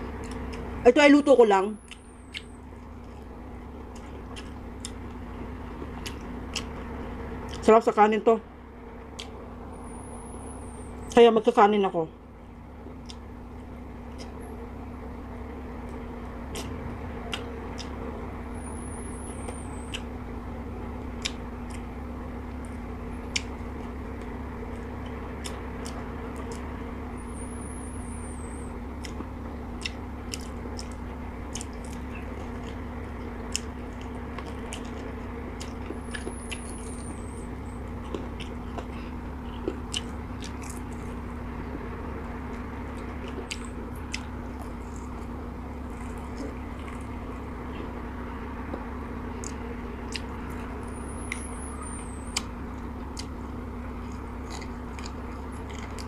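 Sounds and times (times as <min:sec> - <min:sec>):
sharp crunchy clicks: 0:00.0 - 0:00.9, 0:01.8 - 0:08.0, 0:08.6 - 0:11.3, 0:12.7 - 0:56.0
steady low hum: 0:00.0 - 0:56.0
chewing crispy chicken: 0:01.8 - 0:07.7, 0:15.6 - 0:18.4, 0:19.5 - 0:27.1, 0:28.8 - 0:56.0.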